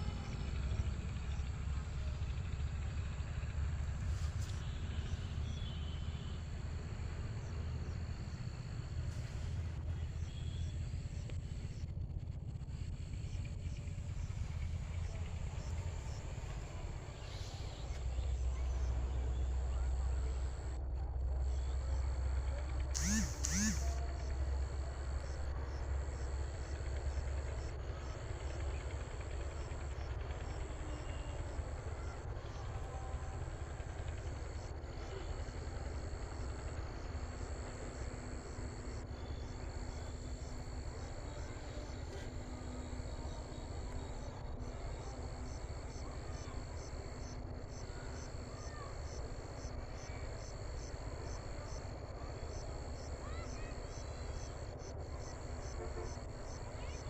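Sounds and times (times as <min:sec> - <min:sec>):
insects trilling: 0:21.4 - 0:57.0.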